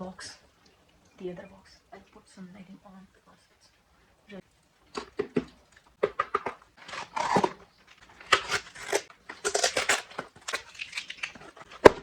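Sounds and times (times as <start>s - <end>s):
packaging rustling and crinkling: 4.8s - 12.0s.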